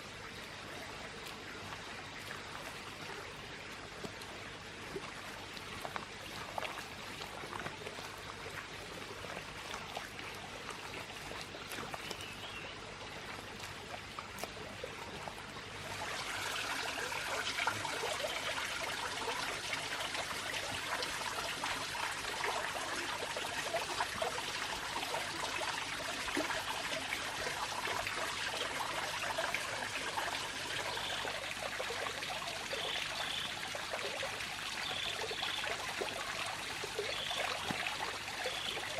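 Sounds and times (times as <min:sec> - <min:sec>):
water trickling: 0:00.0 - 0:38.9.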